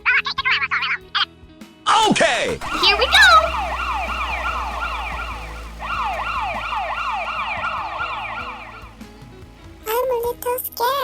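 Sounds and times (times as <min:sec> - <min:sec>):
police car siren: 0:02.5 - 0:10.0.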